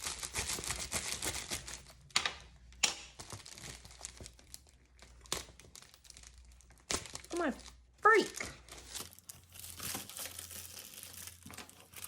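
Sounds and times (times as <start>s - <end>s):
plastic mailer crinkling: 0.0s - 12.0s
sharp plastic crackles: 0.0s - 12.0s.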